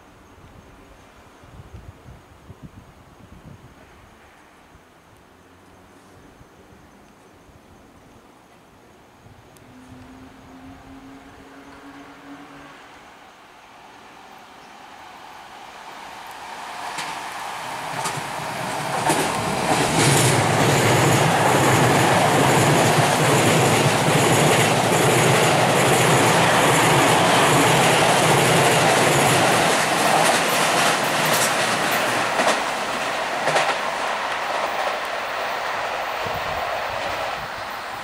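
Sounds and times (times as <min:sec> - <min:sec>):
electric train accelerating past: 0:09.2 - 0:38.0
wheels clacking over rail joints: 0:15.4 - 0:36.2.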